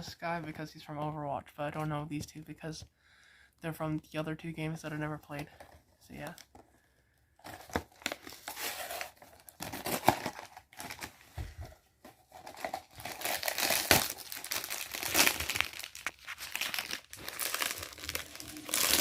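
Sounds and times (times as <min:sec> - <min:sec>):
toy packaging being torn open: 0:07.5 - 0:11.1, 0:12.3 - 0:19.0.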